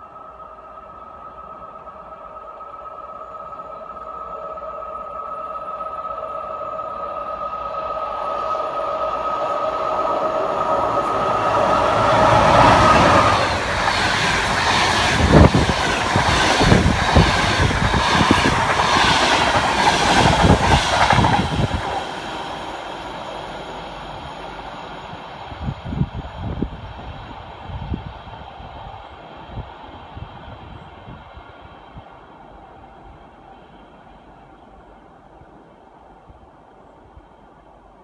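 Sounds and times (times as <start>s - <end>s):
train wheels clattering over rails: 10.8s - 23.1s.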